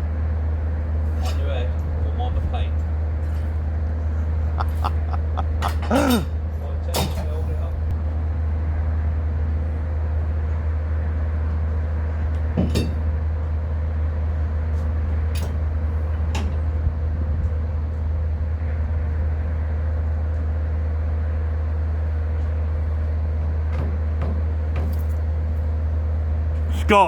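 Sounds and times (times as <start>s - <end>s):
low engine drone: 1.8s - 6.8s.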